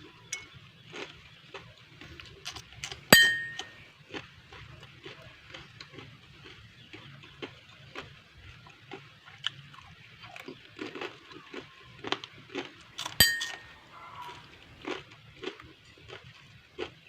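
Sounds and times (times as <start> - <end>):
crunching and chewing snacks: 0.0 - 17.0
dishware clinking: 3.2 - 3.8, 13.0 - 13.9.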